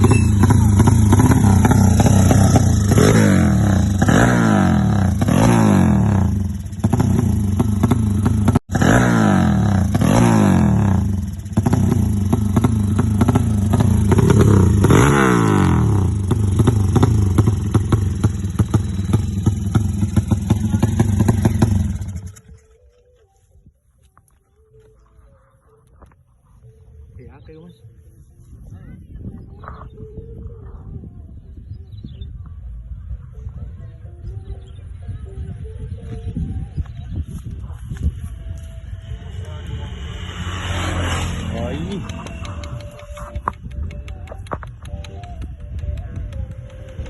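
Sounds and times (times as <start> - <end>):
motorcycle engine revving: 0.0 - 22.8, 36.8 - 47.0.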